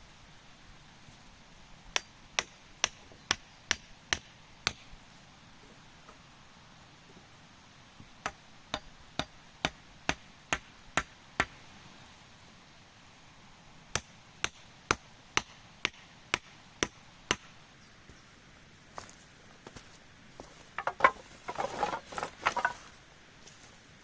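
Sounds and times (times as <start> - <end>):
wood being chopped: 20.8 - 22.8.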